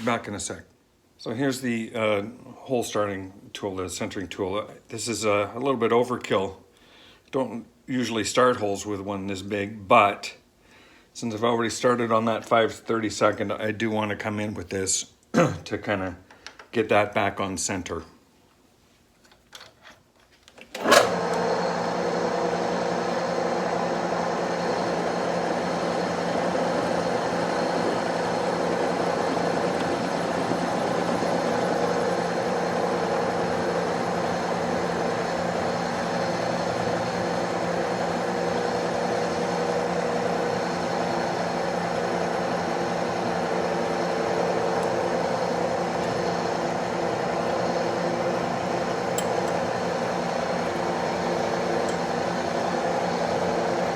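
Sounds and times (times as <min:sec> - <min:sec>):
metal lathe running: 0:20.8 - 0:53.9
lathe switch click: 0:49.1 - 0:49.6.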